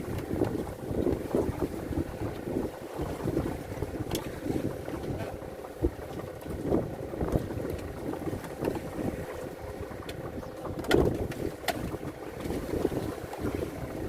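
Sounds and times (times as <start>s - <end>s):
waves slapping against boat: 0.0s - 14.0s
wind buffeting microphone: 0.0s - 14.0s
knocks on boat: 10.0s - 12.6s.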